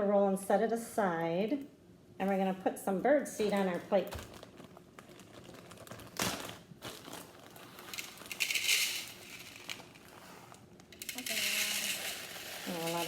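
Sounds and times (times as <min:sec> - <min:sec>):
bag crinkling: 0:03.5 - 0:13.0
seed pouring: 0:07.3 - 0:10.2, 0:11.0 - 0:13.0.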